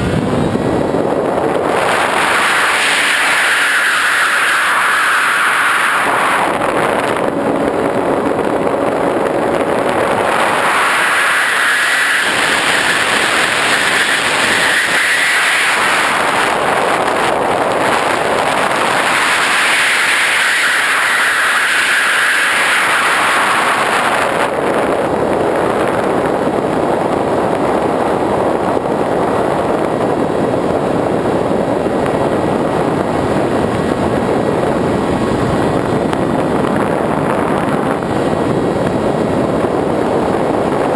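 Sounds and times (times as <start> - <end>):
model airplane motor whine: 0.0 - 26.1
rushing air: 0.0 - 40.9.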